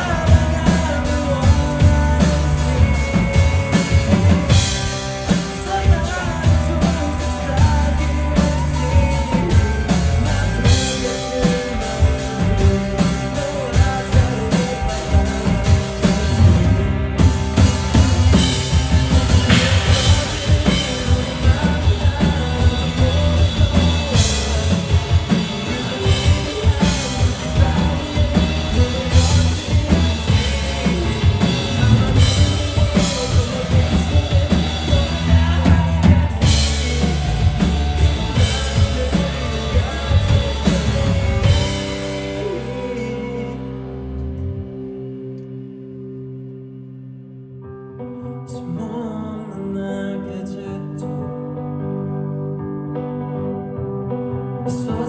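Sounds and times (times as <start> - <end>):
pounding drum kit: 0.0 - 44.0
rock band playing live: 0.0 - 47.6.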